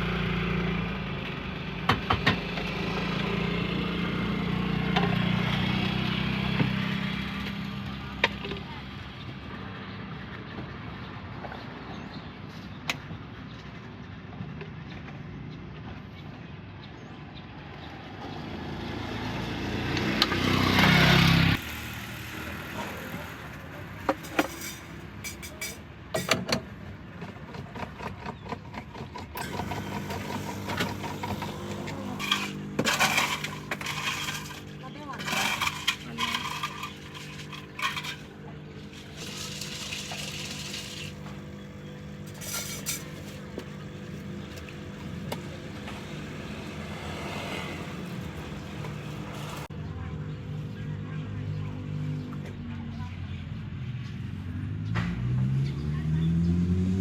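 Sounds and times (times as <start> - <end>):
vehicle passing close by: 18.2 - 23.4, 45.8 - 49.7, 54.4 - 57.0
clatter and knocks of coffee-bar work: 24.1 - 26.6, 27.2 - 41.5, 42.2 - 43.9
electric machine hum: 29.3 - 49.7.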